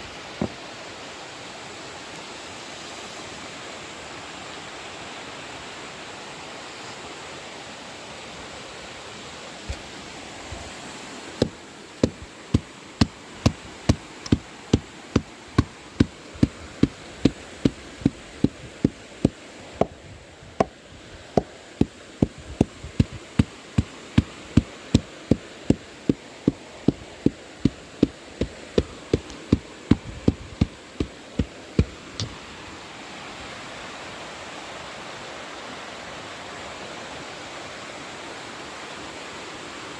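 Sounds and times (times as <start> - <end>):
constant rushing noise: 6.7 - 35.4
rhythmic hard knocking: 11.4 - 19.4, 21.4 - 32.0.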